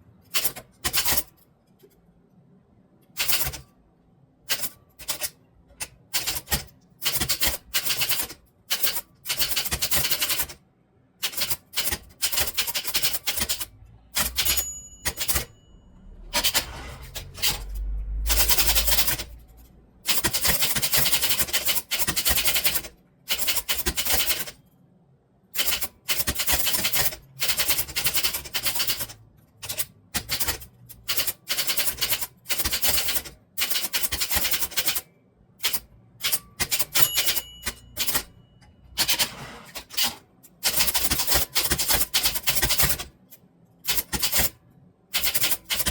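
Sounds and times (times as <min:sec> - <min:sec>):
typewriter key strikes: 0:11.2 - 0:15.5, 0:35.6 - 0:38.3
typewriter margin bell: 0:11.9 - 0:24.6, 0:25.6 - 0:39.3.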